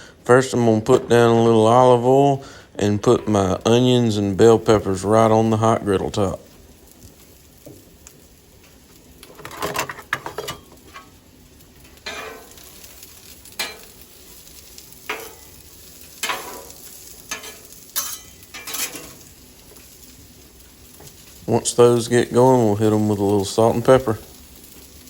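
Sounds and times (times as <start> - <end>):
vegetables sizzling in oil: 1.6 - 25.0
metal spatula scraping griddle: 12.0 - 14.0, 15.0 - 15.6, 16.2 - 19.3.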